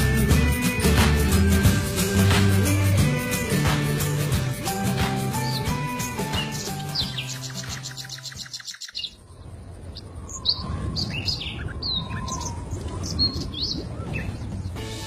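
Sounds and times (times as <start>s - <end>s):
music: 0.0s - 8.5s, 14.2s - 15.0s
small birds chirping: 5.0s - 14.8s.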